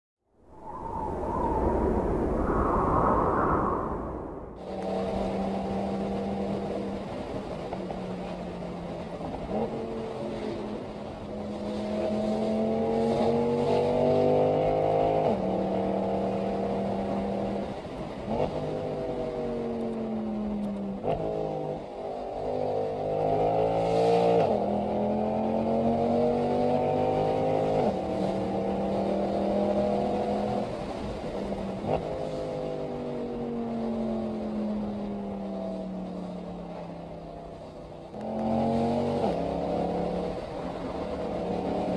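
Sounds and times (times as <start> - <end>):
car engine accelerating: 31.8 - 41.9.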